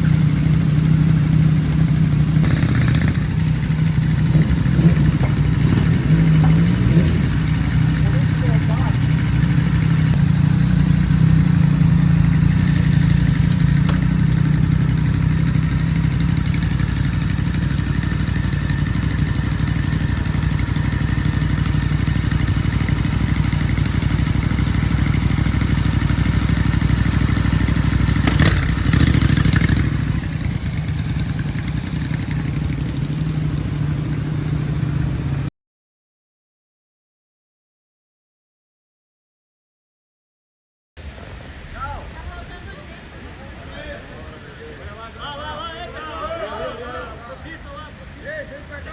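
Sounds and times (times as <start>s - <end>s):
motorcycle engine idling: 0.0s - 35.5s.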